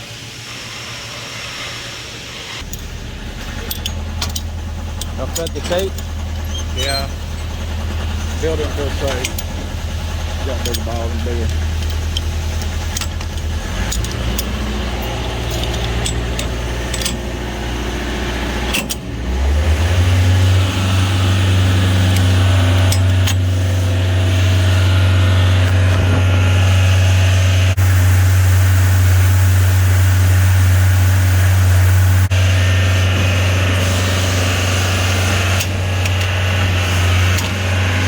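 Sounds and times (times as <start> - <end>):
lift engine running: 0.0 - 38.0
light clicks and jangles: 8.6 - 17.6.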